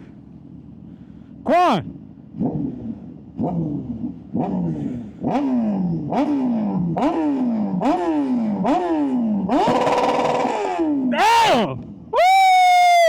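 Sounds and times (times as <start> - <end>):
motorcycle engine revving: 1.8 - 12.0.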